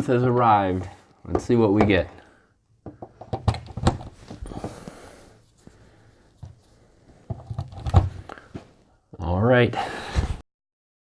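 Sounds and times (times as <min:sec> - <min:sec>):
power cords clicking and knocking: 0:02.8 - 0:04.9, 0:06.4 - 0:08.4
breathy rustle: 0:04.1 - 0:07.3.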